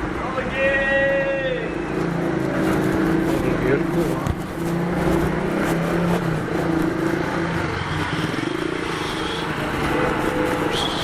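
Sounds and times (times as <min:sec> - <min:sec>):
vehicle engine running: 0:01.8 - 0:11.0.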